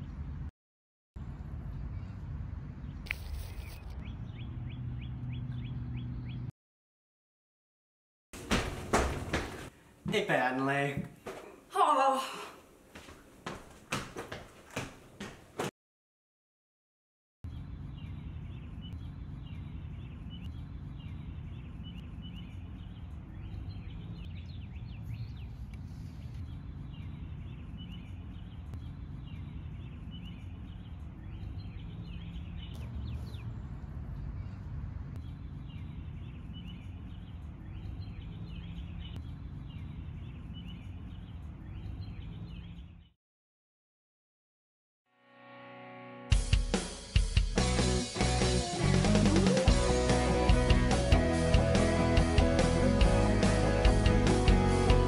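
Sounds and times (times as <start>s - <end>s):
bird chirping: 2.8s - 6.5s, 17.5s - 33.6s, 34.2s - 43.2s.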